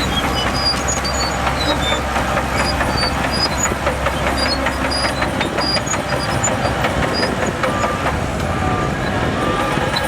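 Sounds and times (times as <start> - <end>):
bulldozer diesel engine running: 0.0 - 10.0
steel tracks clanking and squeaking: 0.0 - 10.0.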